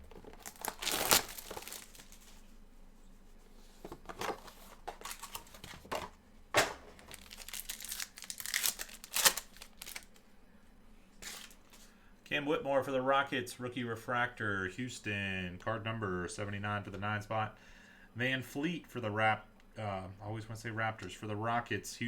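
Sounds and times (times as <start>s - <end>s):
plastic packaging crinkling and tearing: 0.0s - 2.4s, 4.2s - 5.9s, 6.6s - 10.2s, 11.2s - 11.9s.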